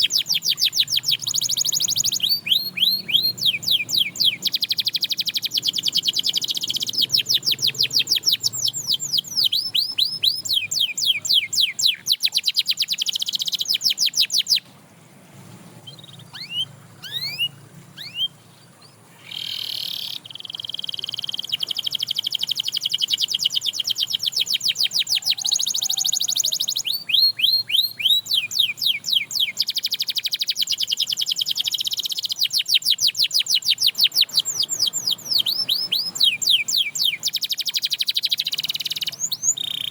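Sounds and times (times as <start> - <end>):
canary singing trills: 0.0 - 14.8, 15.4 - 39.9.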